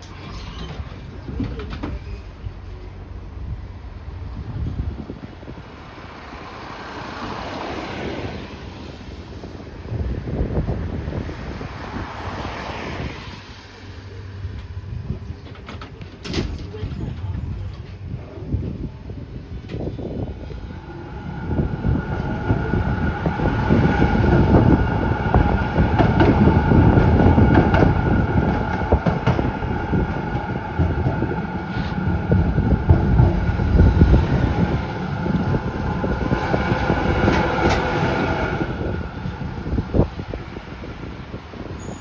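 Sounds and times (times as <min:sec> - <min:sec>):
tram rumbling and rattling: 0:00.0 - 0:42.0
wheels clicking on rails: 0:14.3 - 0:42.0.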